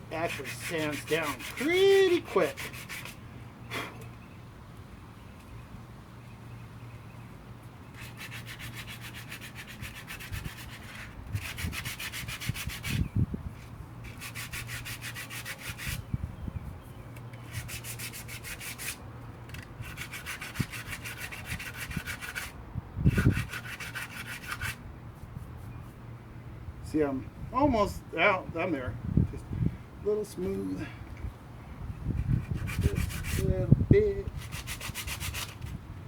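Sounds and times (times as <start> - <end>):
sandpaper rubbing by hand: 0.1 - 3.2, 8.0 - 13.0, 14.1 - 16.0, 17.4 - 19.0, 19.8 - 22.5, 23.1 - 24.8, 32.3 - 35.8.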